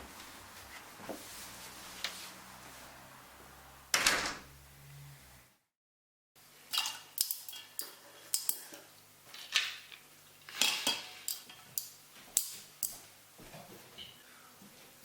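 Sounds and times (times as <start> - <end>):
dishes and cutlery clattering: 10.5 - 11.8.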